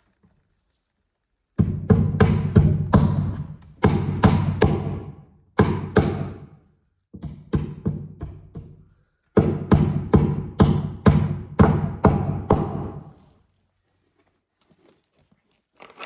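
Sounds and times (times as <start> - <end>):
hammer blows on staples: 1.6 - 6.6, 7.2 - 13.1.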